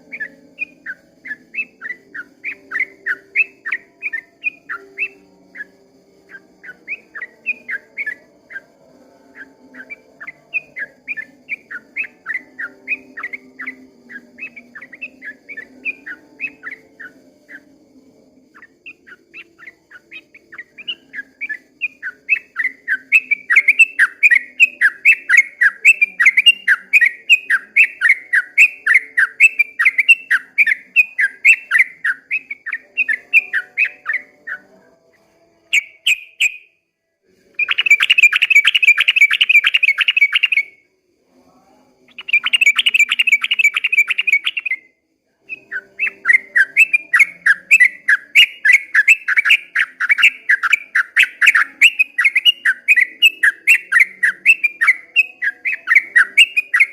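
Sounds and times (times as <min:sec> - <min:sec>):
bird trills: 0:00.0 - 0:08.7, 0:37.6 - 0:40.8, 0:42.1 - 0:44.9, 0:45.5 - 0:56.9
bird chirping song: 0:00.0 - 0:56.9.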